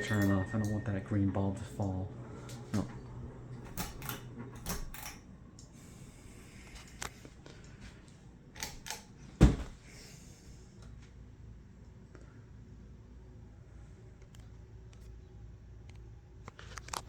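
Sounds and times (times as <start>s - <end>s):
ceiling fan motor hum: 0.0s - 17.0s
pull-chain switch clicks: 3.7s - 5.2s, 8.6s - 9.2s.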